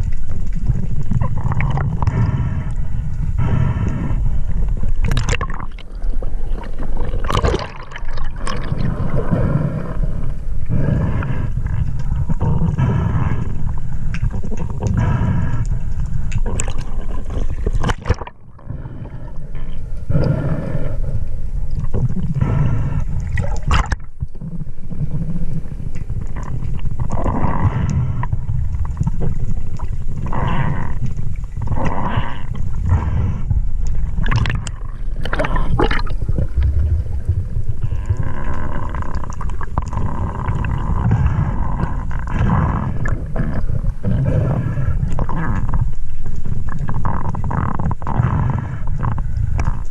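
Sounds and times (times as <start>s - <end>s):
steady low rumble: 0.0s - 49.9s
water sloshing and gurgling: 0.0s - 49.9s
breaths through a snorkel: 1.7s - 4.8s, 8.7s - 16.9s, 22.2s - 23.6s.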